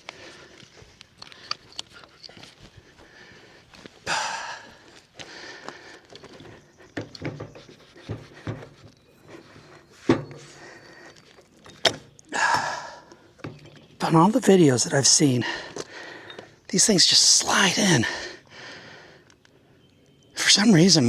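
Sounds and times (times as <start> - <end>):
person breathing hard: 0.0 - 1.7, 2.5 - 7.0, 12.3 - 13.4, 15.4 - 16.6, 18.0 - 19.3.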